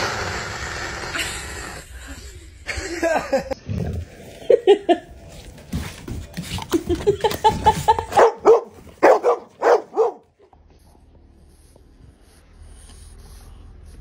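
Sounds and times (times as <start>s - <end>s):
dog barking: 8.1s - 10.3s.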